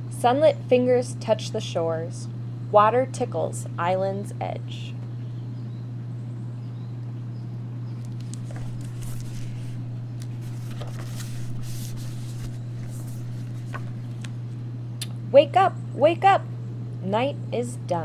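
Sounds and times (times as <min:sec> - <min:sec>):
low electrical hum: 0:00.0 - 0:18.0
paper pages rustling: 0:08.0 - 0:14.7.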